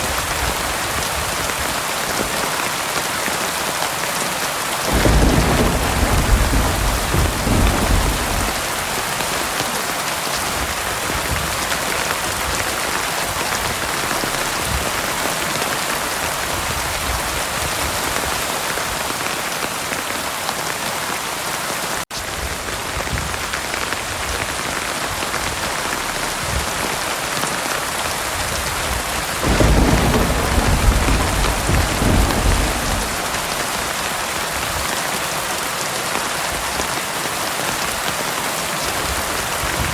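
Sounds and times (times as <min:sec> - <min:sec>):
heavy rain falling: 0:00.0 - 0:39.9
low rolling thunder: 0:04.8 - 0:09.8, 0:28.3 - 0:34.9.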